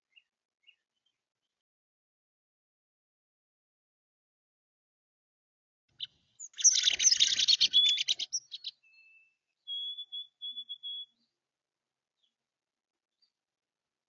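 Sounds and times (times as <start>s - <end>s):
songbird chattering: 6.4s - 8.7s
songbird whistled notes: 6.4s - 11.2s.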